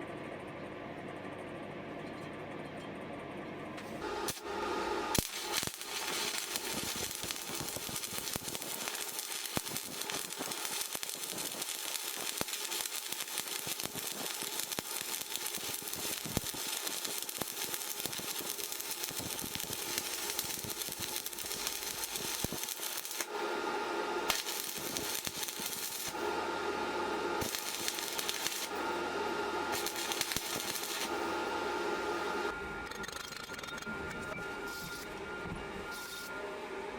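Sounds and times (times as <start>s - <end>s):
welding arc crackling: 4.0s - 23.4s, 24.2s - 33.5s.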